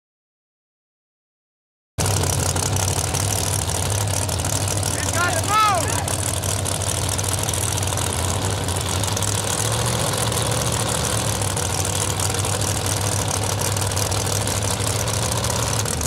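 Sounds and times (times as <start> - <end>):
race car engines idling: 2.0 - 16.0.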